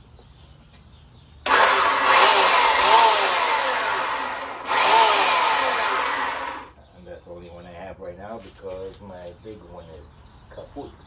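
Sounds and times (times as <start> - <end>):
chainsaw cutting log: 1.5 - 6.7.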